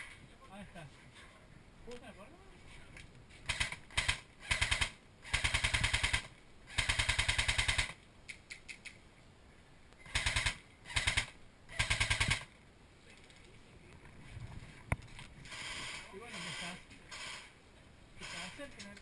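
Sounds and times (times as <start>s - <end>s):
airsoft rifle firing bursts: 3.4s - 8.0s, 10.0s - 12.5s, 15.5s - 17.5s.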